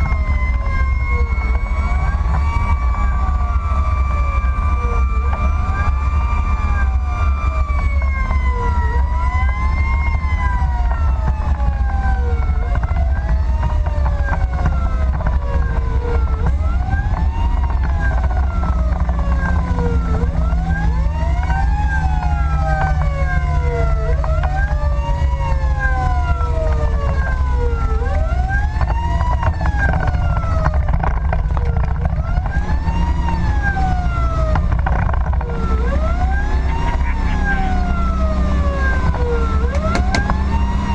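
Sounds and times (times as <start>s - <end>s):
rising and falling siren: 0.0s - 40.9s
road noise: 0.0s - 40.9s
slowly sliding siren tone: 0.0s - 40.9s
truck engine rumble: 0.0s - 40.9s.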